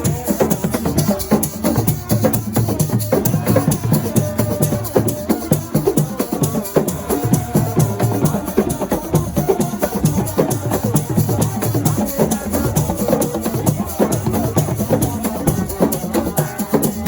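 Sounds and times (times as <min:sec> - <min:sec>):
fast drum rhythm: 0:00.0 - 0:17.0
rattling shaker: 0:00.0 - 0:17.0.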